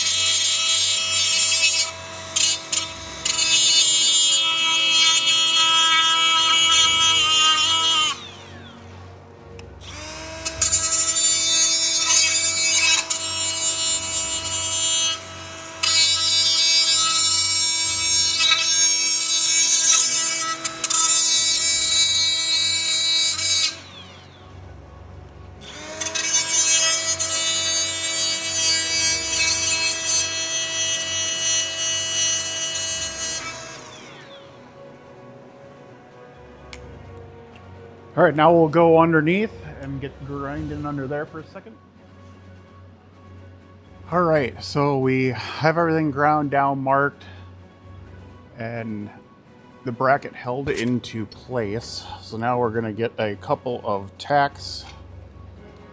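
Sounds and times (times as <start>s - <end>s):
angle grinder grinding metal: 0.0s - 24.6s, 25.2s - 35.0s, 49.9s - 55.0s.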